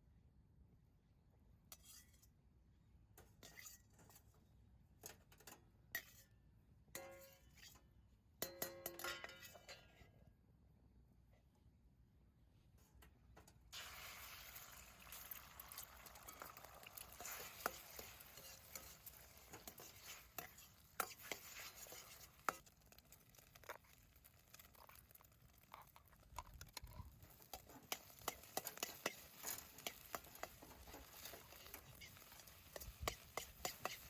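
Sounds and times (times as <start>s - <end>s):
campfire hiss and crackles: 13.7s - 34.0s.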